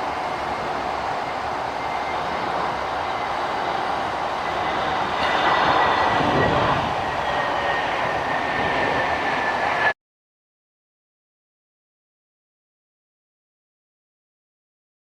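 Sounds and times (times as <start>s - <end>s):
jet engines rushing and whining: 0.0s - 10.0s.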